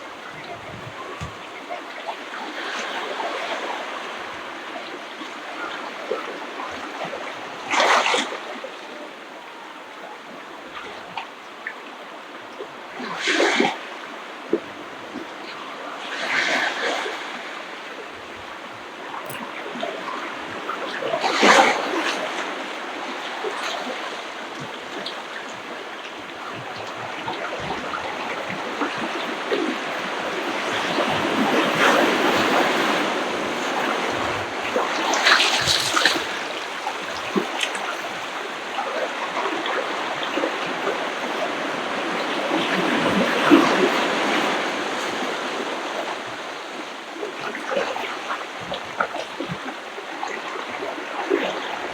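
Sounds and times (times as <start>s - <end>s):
small waves washing onto beach: 0.0s - 51.9s
breaking water splashes: 34.6s - 38.1s.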